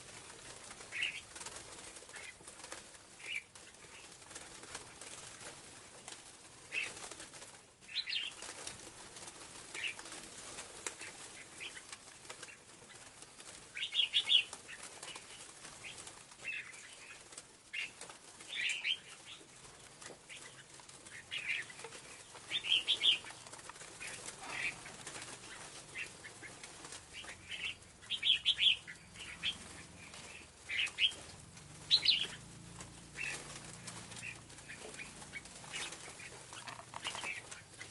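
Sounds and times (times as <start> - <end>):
bird calling high chips: 31.9 - 32.4.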